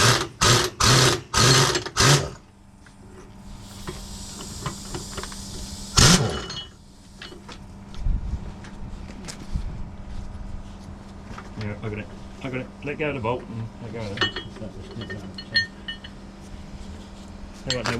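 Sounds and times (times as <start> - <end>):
impact wrench rattling: 3.4 - 7.5
high air hiss: 3.4 - 8.0.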